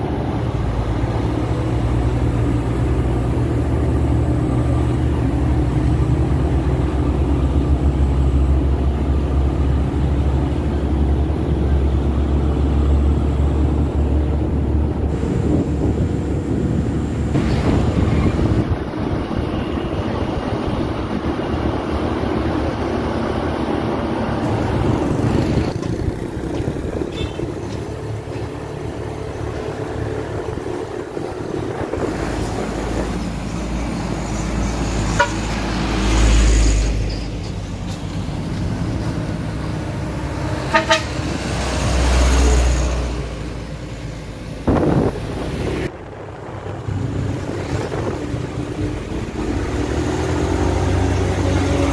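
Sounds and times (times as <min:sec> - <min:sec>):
wind buffeting microphone: 0:10.9 - 0:33.2, 0:44.4 - 0:51.9
short horn toots: 0:40.7 - 0:41.2.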